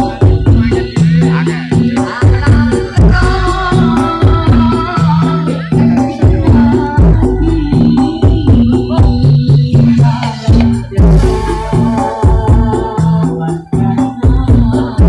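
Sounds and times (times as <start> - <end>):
loud dance music: 0.0 - 15.0
heavy bass kicks: 6.2 - 13.2.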